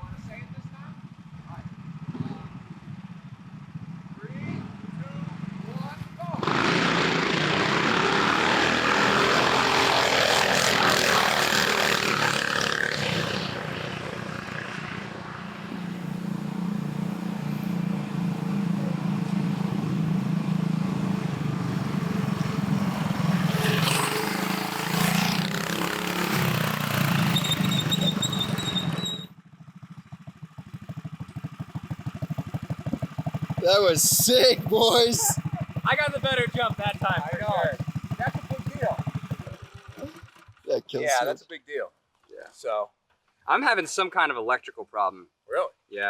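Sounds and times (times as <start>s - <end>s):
go-kart engines running flat out: 6.2s - 41.2s
evenly pulsing engine note: 6.4s - 23.2s.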